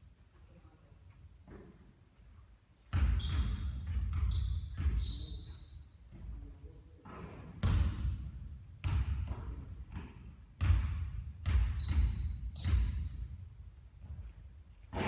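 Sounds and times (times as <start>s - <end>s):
basketball bouncing on court: 2.9s - 5.4s, 7.1s - 15.0s.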